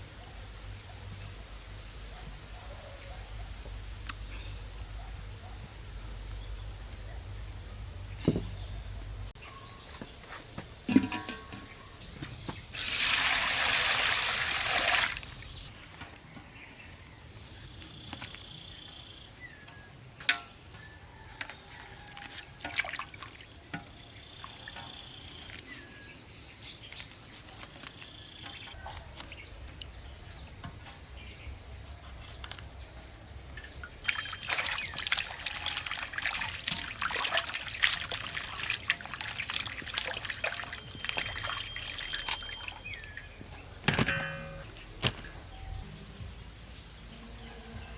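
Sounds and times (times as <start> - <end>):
insects chirping: 3.6 - 47.9
liquid pouring: 34.0 - 43.2.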